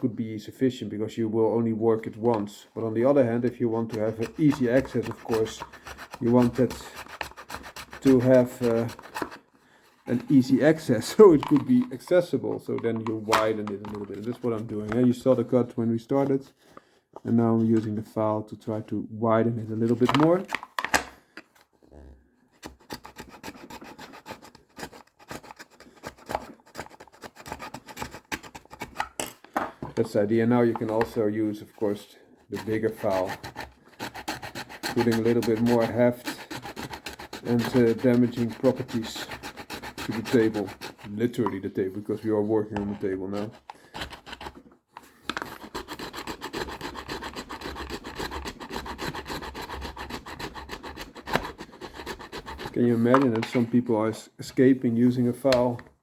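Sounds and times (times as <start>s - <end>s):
hand file rasping plastic: 3.0s - 15.7s, 22.5s - 29.2s, 30.2s - 53.7s.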